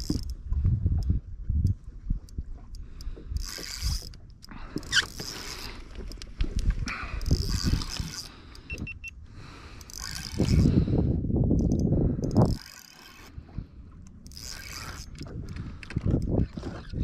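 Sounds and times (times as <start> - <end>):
fishing reel whirring: 0.0 - 0.4, 3.3 - 6.2, 6.9 - 8.7, 9.5 - 10.9, 11.6 - 13.5, 14.1 - 17.0.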